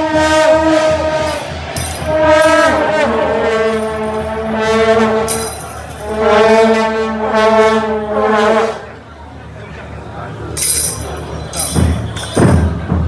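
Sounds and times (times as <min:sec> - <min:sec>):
horns sounding long notes: 0:00.0 - 0:10.0.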